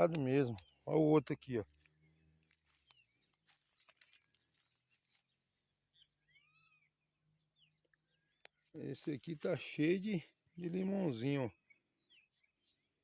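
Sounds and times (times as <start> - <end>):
faint bird chirps: 0.0 - 13.0
faint high insect drone: 0.0 - 13.0.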